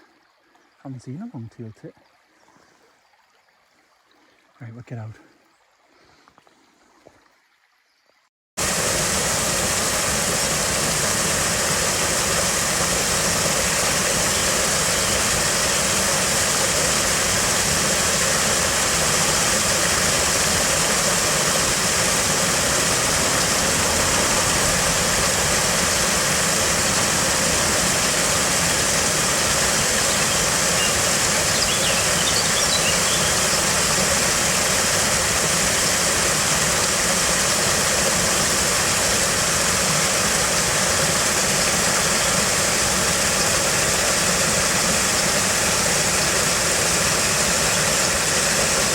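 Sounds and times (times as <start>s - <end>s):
fast-flowing stream water: 8.6s - 48.9s
faint high chirps: 30.2s - 33.8s.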